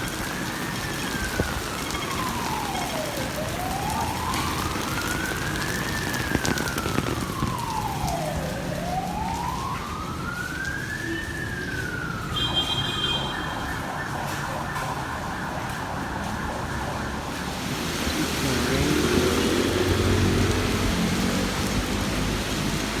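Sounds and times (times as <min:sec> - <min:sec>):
rain hiss: 0:00.0 - 0:09.3, 0:17.3 - 0:23.0
siren wailing: 0:00.0 - 0:22.8
street traffic: 0:00.0 - 0:23.0.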